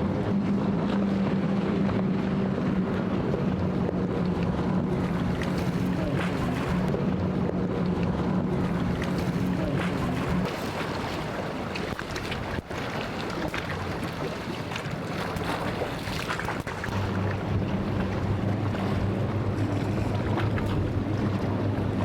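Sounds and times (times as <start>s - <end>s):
boat engine running: 0.0s - 22.0s
waves washing: 0.0s - 22.0s
wind on microphone: 0.0s - 22.0s.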